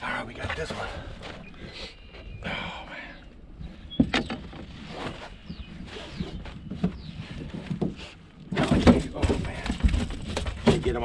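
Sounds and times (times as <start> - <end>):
knocks and thuds in a boat: 3.7 - 11.0.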